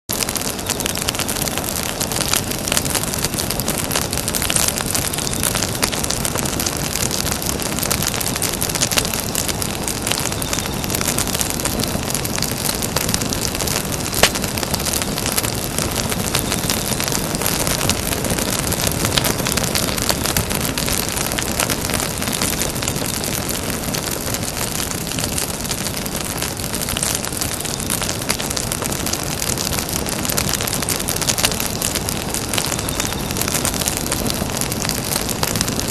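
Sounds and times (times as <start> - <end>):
sharp fire pop: 0.1 - 29.2
campfire crackling: 0.1 - 35.9.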